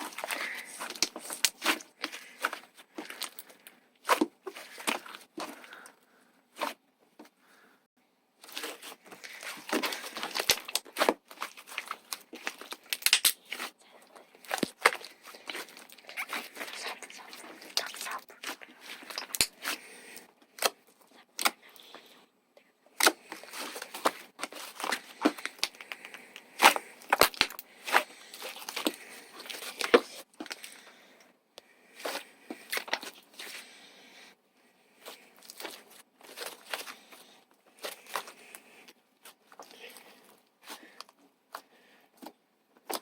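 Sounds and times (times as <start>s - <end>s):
slime popping and crackling: 9.3s - 13.6s, 14.4s - 19.6s.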